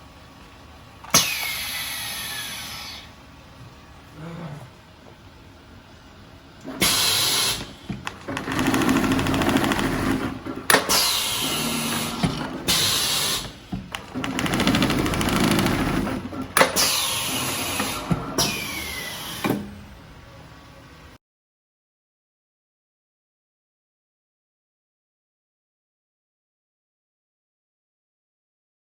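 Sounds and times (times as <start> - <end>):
short hissing bursts: 1.2 - 3.1, 6.8 - 7.8, 10.9 - 13.6
sewing machine stitching: 6.6 - 19.7.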